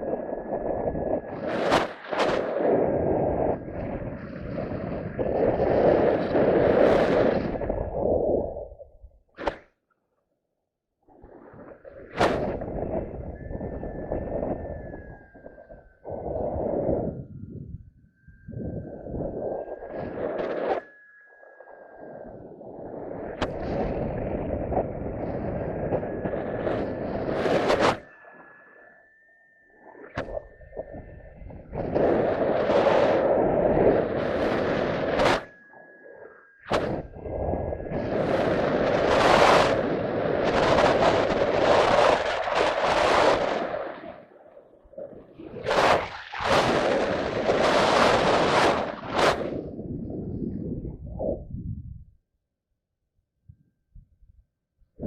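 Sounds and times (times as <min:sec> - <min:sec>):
wind buffeting microphone: 0:00.0 - 0:09.2, 0:11.7 - 0:21.1, 0:21.9 - 0:28.2, 0:30.1 - 0:36.0, 0:36.6 - 0:52.2
faint steady high tone: 0:12.1 - 0:46.1.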